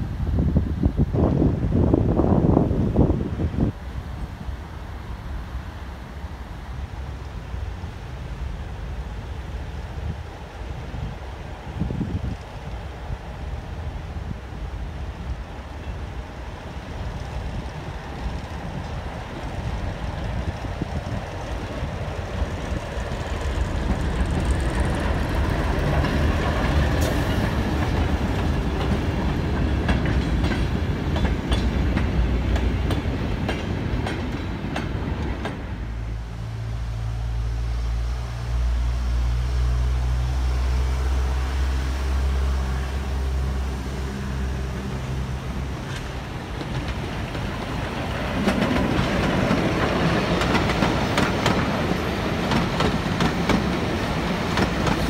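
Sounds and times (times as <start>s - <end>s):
diesel locomotive engine humming: 0.0s - 55.0s
wheels clicking over rail joints: 17.6s - 35.8s, 45.6s - 55.0s.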